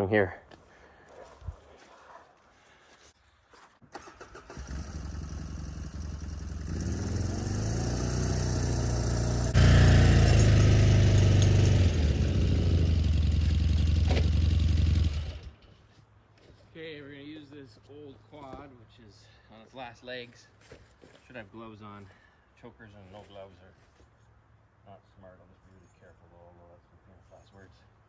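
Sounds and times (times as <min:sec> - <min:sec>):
quad engine starting and running: 0:03.9 - 0:15.7.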